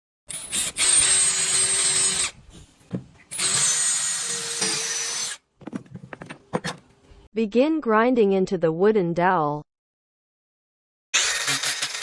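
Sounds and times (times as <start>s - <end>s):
power tool whining on wood: 11.2s - 12.0s.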